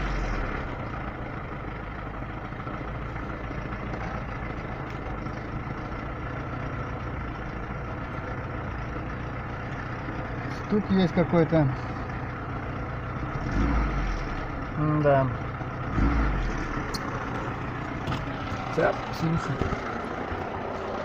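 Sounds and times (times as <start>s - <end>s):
car engine idling: 0.0s - 21.0s
dull engine knock: 16.7s - 21.0s.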